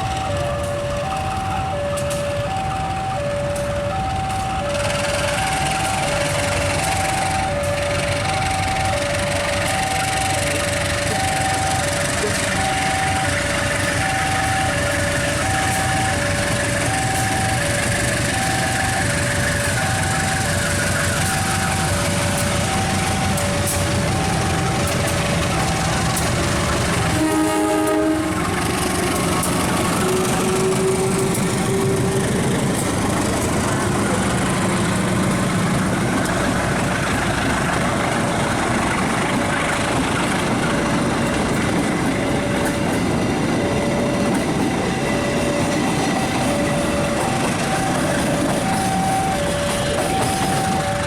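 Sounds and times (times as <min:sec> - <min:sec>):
train rumbling past: 0:00.0 - 0:51.0
two-note alarm: 0:00.0 - 0:51.0
train horn: 0:26.6 - 0:34.3.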